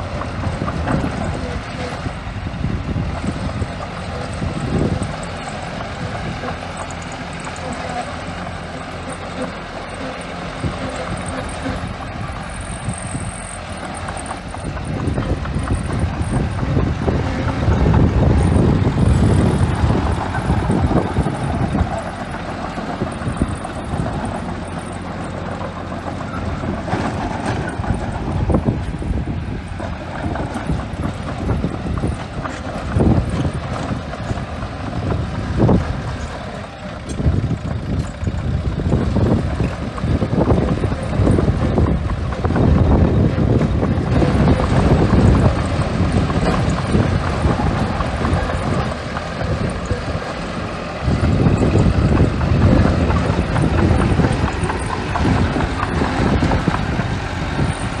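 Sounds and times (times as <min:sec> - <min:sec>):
bulldozer diesel engine rumbling: 0:00.0 - 0:58.0
wind buffeting microphone: 0:00.0 - 0:58.0.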